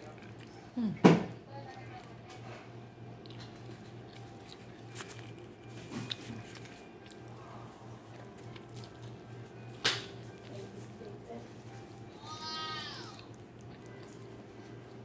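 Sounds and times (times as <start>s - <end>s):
person chewing a burger: 0.0s - 0.8s, 2.7s - 10.8s, 11.9s - 15.0s
wet crackles of chewing: 0.0s - 1.0s, 1.6s - 15.0s
steady low hum: 0.0s - 15.0s.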